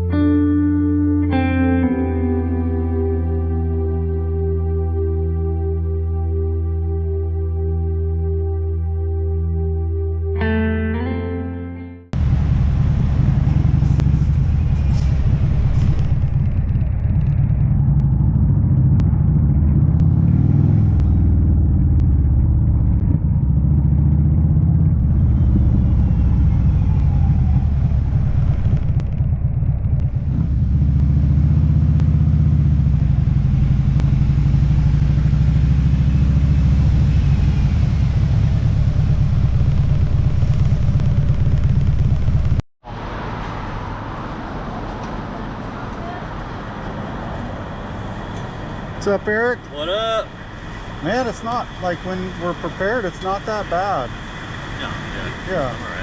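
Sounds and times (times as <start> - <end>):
motorcycle engine revving: 12.2 - 42.6, 47.8 - 56.0
wind and road noise: 12.2 - 56.0.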